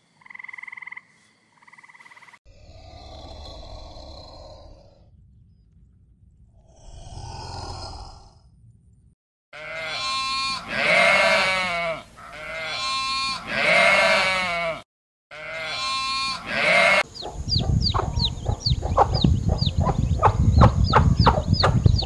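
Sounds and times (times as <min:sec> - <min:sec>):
goat bleating: 0:09.6 - 0:17.1
chickens clucking: 0:17.0 - 0:22.0.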